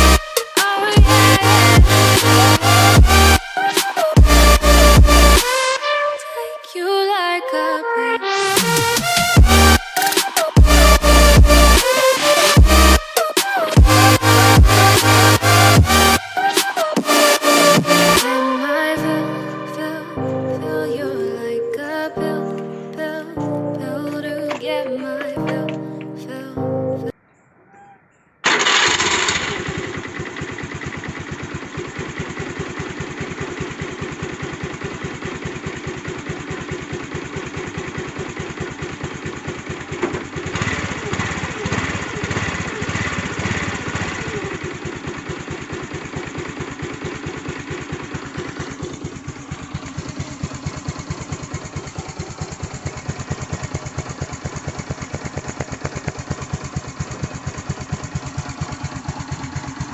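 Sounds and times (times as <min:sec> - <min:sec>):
scooter engine revving: 0:00.0 - 0:05.7, 0:08.6 - 0:18.8, 0:28.4 - 0:59.9
scooter engine starting and idling: 0:00.0 - 0:05.7, 0:28.4 - 0:59.9.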